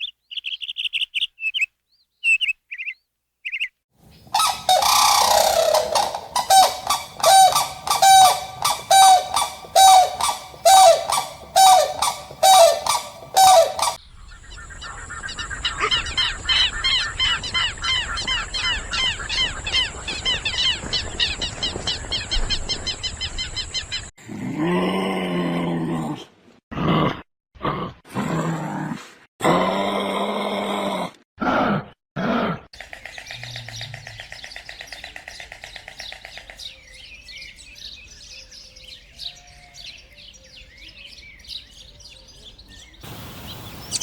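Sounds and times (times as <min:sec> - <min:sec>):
deep drawn-out animal call: 0:04.3 - 0:14.0, 0:29.5 - 0:34.6
animal honking calls: 0:04.4 - 0:14.0
high chirps: 0:04.4 - 0:14.0, 0:43.0 - 0:44.0
steady high hiss: 0:43.0 - 0:44.0.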